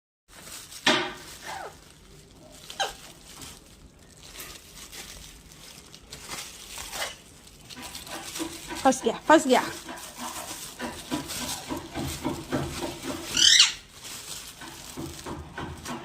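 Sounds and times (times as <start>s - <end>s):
plastic wrapping crinkling: 0.3s - 16.0s
parrot squawks: 1.4s - 1.8s, 13.3s - 13.9s.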